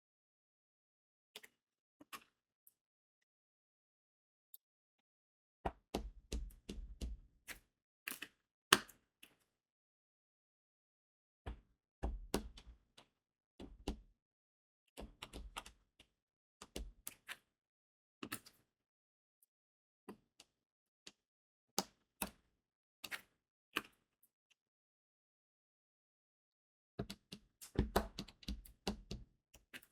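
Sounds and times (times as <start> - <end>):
small sharp clicks and taps: 27.0 - 29.9.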